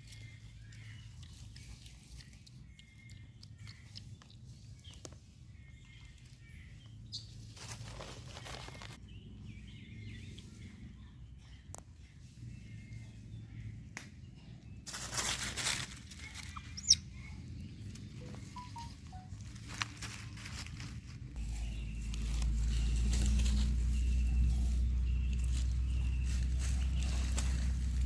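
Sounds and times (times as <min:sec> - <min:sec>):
short high bird chirps: 0:16.4 - 0:17.0, 0:18.1 - 0:19.4.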